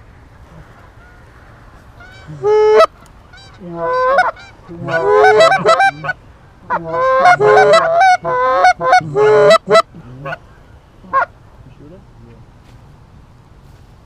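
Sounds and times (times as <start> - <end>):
geese honking: 0.5 - 11.4.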